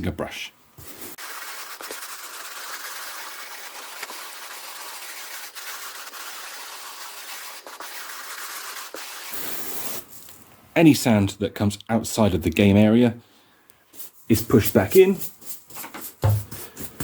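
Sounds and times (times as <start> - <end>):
brush scrubbing carpet: 0.9 - 10.0.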